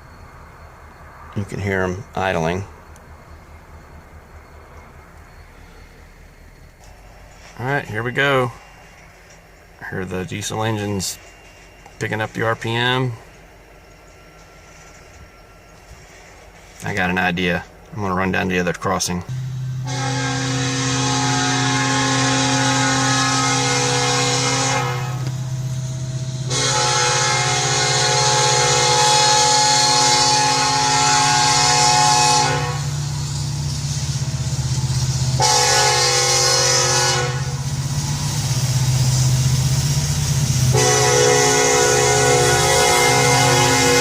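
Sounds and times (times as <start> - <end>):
diesel engines droning: 0.0 - 44.0
locomotive air horn blasts: 19.3 - 33.1, 35.4 - 37.7, 40.7 - 44.0.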